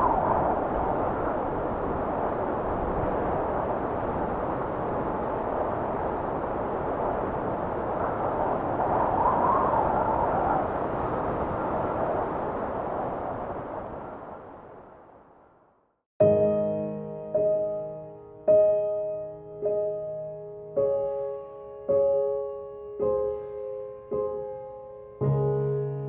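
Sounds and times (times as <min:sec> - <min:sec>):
wind blowing: 0:00.0 - 0:26.0.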